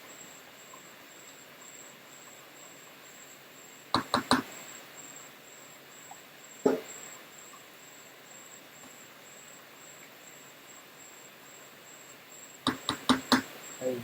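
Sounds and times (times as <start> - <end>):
faint steady hiss: 0.0 - 14.0
sharp knocks: 6.7 - 6.9, 12.7 - 13.5
high thin pulsing chirp: 12.7 - 14.0.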